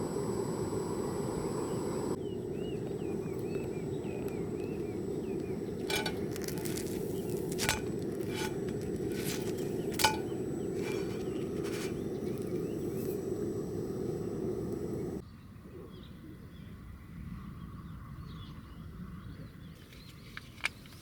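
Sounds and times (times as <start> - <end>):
steady low rush: 0.0 - 15.2
campfire crackling and popping: 2.1 - 15.2.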